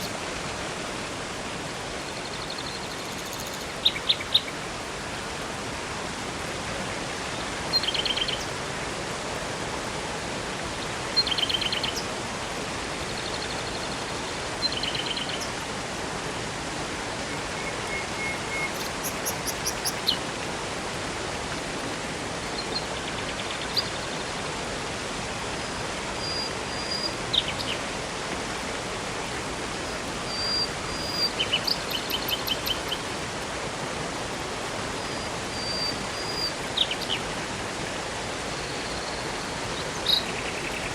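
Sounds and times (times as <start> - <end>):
river and waterfall rushing: 0.0 - 40.9
songbirds chirping: 17.4 - 20.2.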